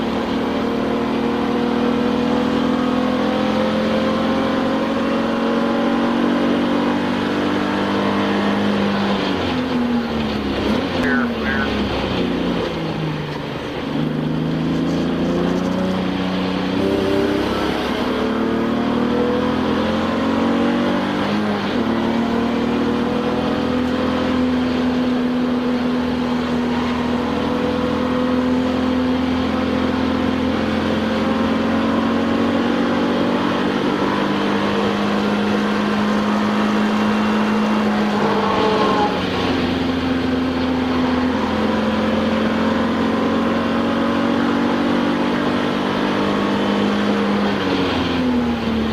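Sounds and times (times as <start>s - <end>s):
race car engine revving: 0.0s - 48.9s.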